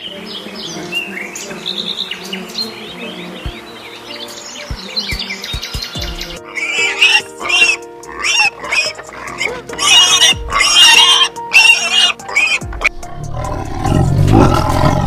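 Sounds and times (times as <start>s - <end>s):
background music: 0.0s - 15.0s
pig squealing: 6.4s - 15.0s.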